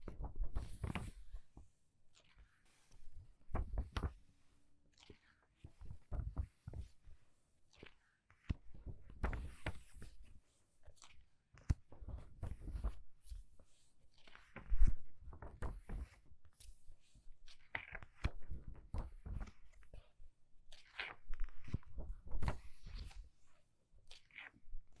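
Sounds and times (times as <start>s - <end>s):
book pages turning: 0.0s - 1.5s, 2.2s - 4.2s, 7.8s - 10.3s, 10.9s - 13.5s, 14.2s - 16.8s, 17.5s - 20.0s, 20.7s - 23.3s, 24.1s - 25.0s.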